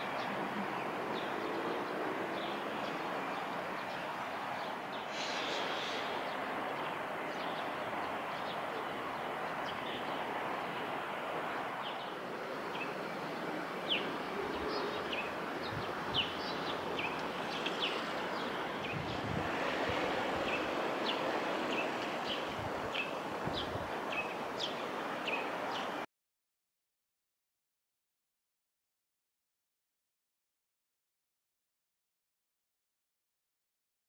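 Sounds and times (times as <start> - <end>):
small birds chirping: 0.0 - 26.0
outdoor background hiss: 0.0 - 26.1.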